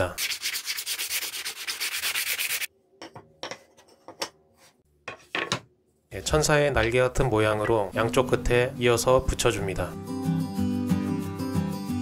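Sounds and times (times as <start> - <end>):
wood being sanded by hand: 0.2 - 2.7.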